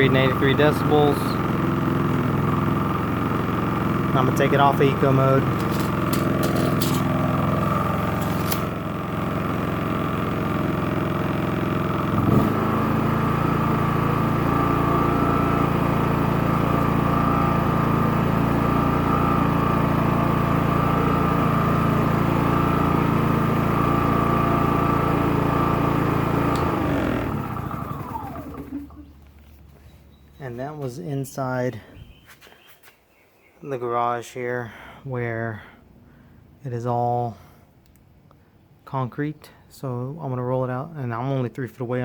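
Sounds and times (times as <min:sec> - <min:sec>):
generator engine running: 0:00.0 - 0:31.0.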